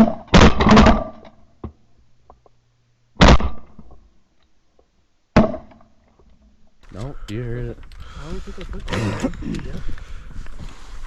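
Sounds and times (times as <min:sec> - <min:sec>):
shotgun blasts: 0:03.2 - 0:03.7.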